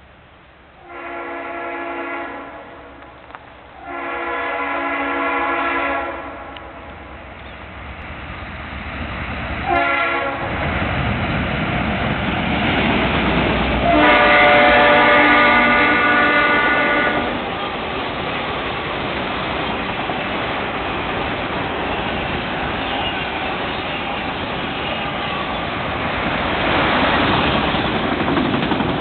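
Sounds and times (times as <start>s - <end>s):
train rumbling past: 0.0s - 29.0s
locomotive air horn: 0.8s - 3.0s, 3.8s - 6.9s, 9.6s - 10.5s, 13.8s - 17.6s.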